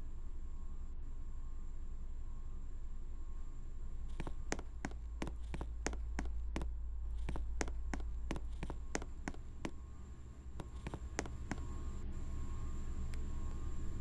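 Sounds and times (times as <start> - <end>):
ceiling fan motor hum: 0.0 - 14.0
ceiling fan clicking: 4.1 - 12.1, 13.0 - 13.7.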